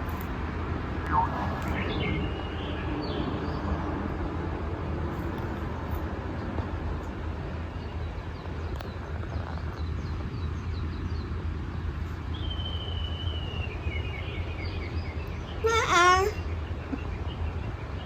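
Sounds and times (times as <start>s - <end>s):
steady low rumble: 0.0s - 12.8s
birds chirping: 7.6s - 18.0s.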